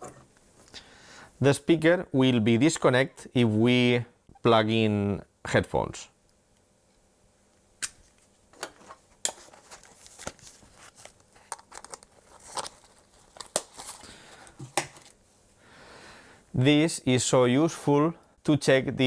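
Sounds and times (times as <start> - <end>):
cable handling noise: 7.8 - 15.2.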